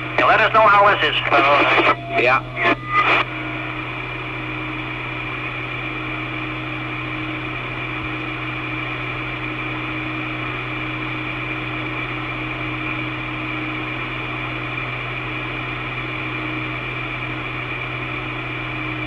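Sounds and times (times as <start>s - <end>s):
radio hiss: 0.0s - 3.4s
faint steady tones: 0.0s - 12.6s
low hum: 0.0s - 19.0s.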